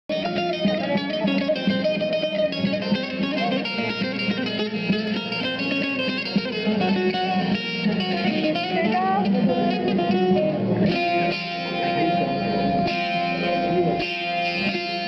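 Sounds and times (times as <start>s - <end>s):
saz picking a melody: 0.1s - 15.0s
electronic keyboard accompaniment: 7.4s - 15.0s.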